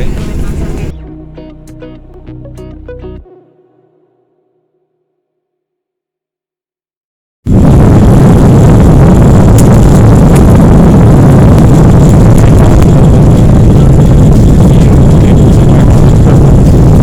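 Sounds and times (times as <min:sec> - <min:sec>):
jet engines roaring inside cabin: 0:07.5 - 0:17.0.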